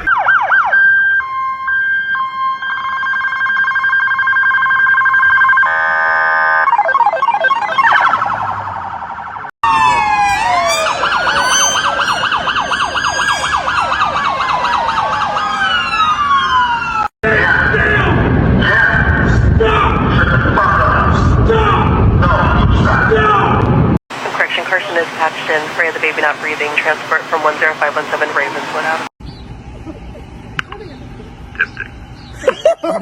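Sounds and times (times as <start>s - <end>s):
police sirens wailing and yelping: 0.0s - 17.1s, 24.3s - 29.1s.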